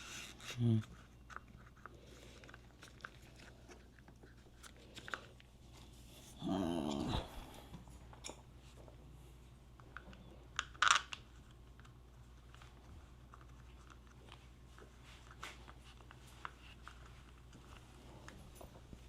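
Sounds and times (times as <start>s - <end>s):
steady low hum: 1.9s - 10.6s.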